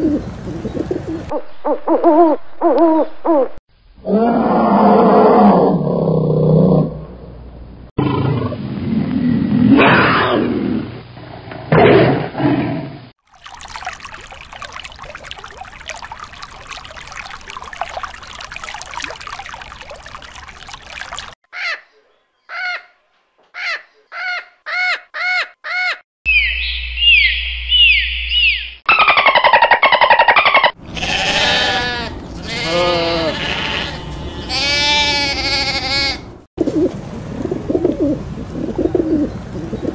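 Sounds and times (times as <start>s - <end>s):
lion growling and roaring: 4.0s - 7.2s, 8.0s - 11.0s, 11.6s - 13.0s
water splashing: 13.2s - 21.4s.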